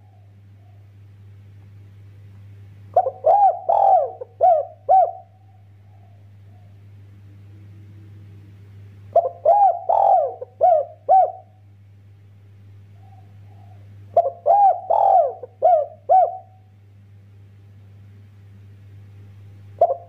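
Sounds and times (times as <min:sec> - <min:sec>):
steady low hum: 0:00.0 - 0:20.0
dove cooing: 0:02.9 - 0:06.9, 0:09.1 - 0:11.6, 0:12.9 - 0:16.7, 0:19.8 - 0:20.0.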